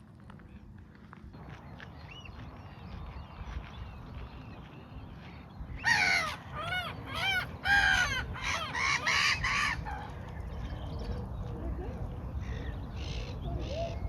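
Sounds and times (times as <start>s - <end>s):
low rumble of wind: 0.0s - 14.0s
large bird calling: 5.7s - 10.6s.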